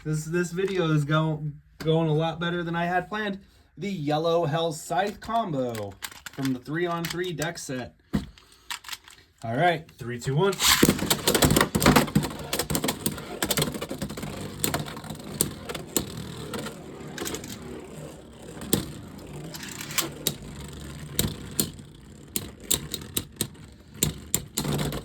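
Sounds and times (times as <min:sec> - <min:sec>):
spinning tops clacking together: 0:10.6 - 0:25.0
spinning tops whirring: 0:10.6 - 0:25.0.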